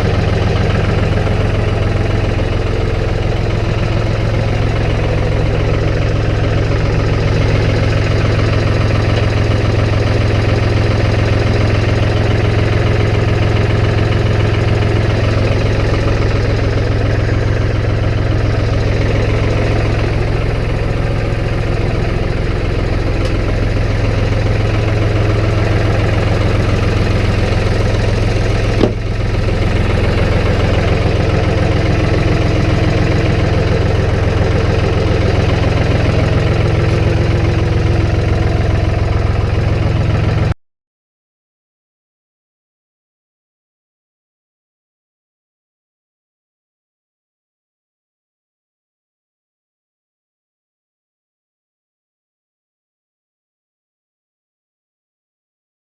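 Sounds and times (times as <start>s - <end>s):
vehicle engine humming: 0.0s - 40.5s.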